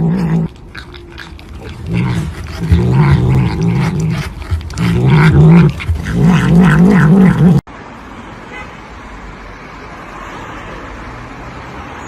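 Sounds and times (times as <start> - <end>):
animal making long low cries: 0.0 - 7.6.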